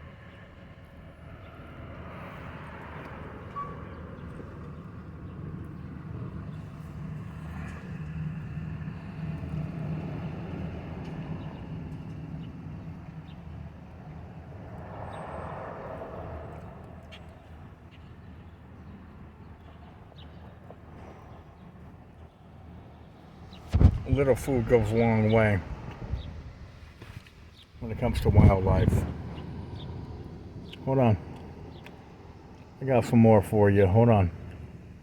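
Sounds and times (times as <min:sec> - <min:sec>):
vehicle engines humming: 0:23.1 - 0:35.0.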